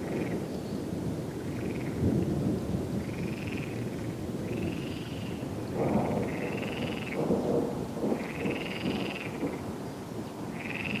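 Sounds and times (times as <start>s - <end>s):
steady rain: 0.0s - 11.0s
thunder rumbling: 5.4s - 11.0s.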